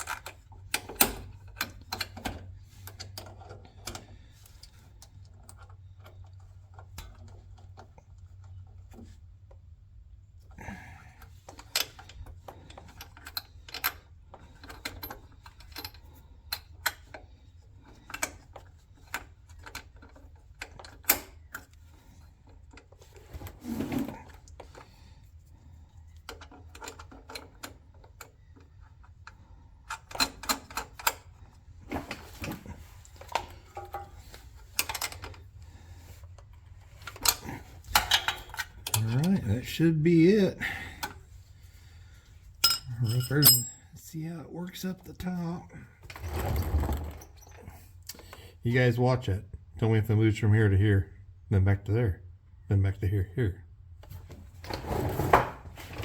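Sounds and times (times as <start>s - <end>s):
hand tools clicking and clanking: 42.6s - 43.8s.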